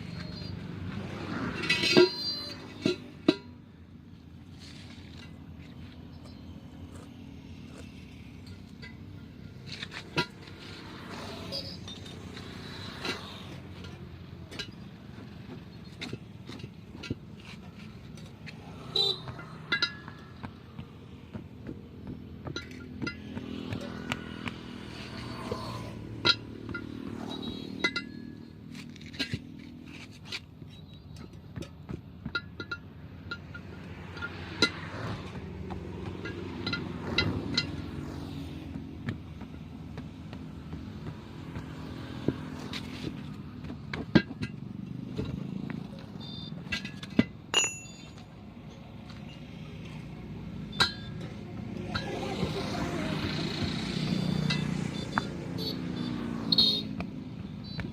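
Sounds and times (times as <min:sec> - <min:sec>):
vehicle engines humming: 0:00.0 - 0:57.9
steel tools clinking on metal: 0:01.5 - 0:03.5, 0:46.0 - 0:49.6, 0:50.7 - 0:53.0
sharp metallic clinks: 0:19.0 - 0:20.4, 0:22.4 - 0:28.6, 0:45.9 - 0:57.0.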